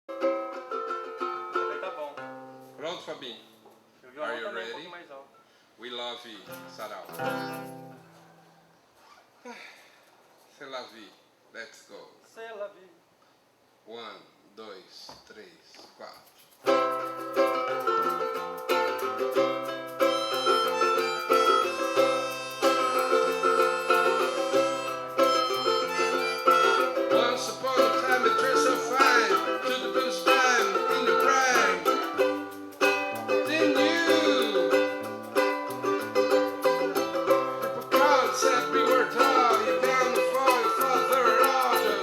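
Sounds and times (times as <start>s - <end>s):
plucked strings: 0.1s - 2.9s, 6.5s - 8.4s, 16.7s - 42.0s
strummed acoustic guitar: 6.5s - 8.5s, 16.7s - 42.0s
gliding melody line: 18.9s - 42.0s
person counting in: 27.1s - 32.3s, 37.9s - 42.0s.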